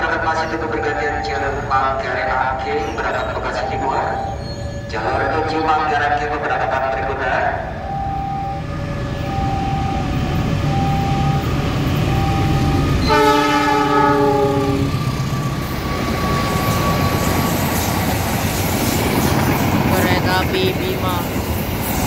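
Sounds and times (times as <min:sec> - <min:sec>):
diesel locomotive rumbling: 0:00.0 - 0:22.0
two-note alternating tone: 0:07.8 - 0:14.9
chord horn: 0:13.0 - 0:15.0.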